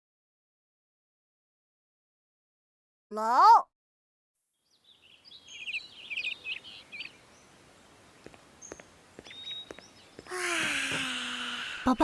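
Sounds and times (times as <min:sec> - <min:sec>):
small birds chirping: 0:04.5 - 0:12.0.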